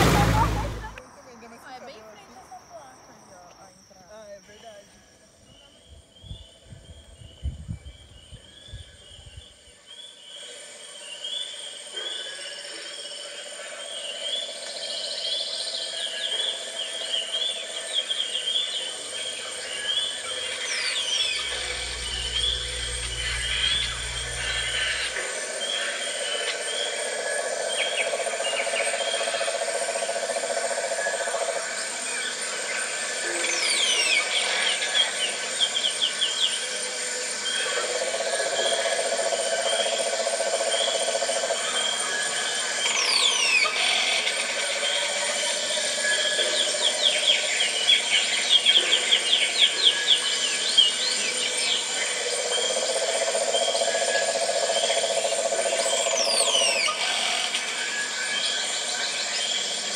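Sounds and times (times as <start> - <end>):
insect drone: 0.0 - 59.9
birds calling: 18.1 - 26.0.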